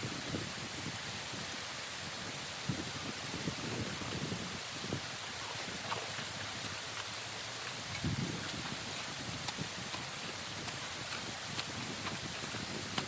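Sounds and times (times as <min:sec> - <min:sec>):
water rushing through dam: 0:00.0 - 0:13.0.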